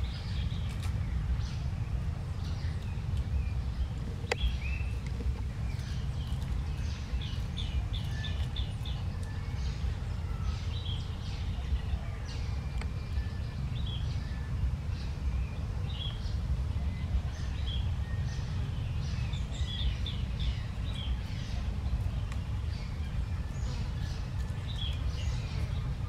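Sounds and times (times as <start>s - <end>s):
small birds chirping: 0.0s - 26.0s
steady low rumble: 0.0s - 26.0s.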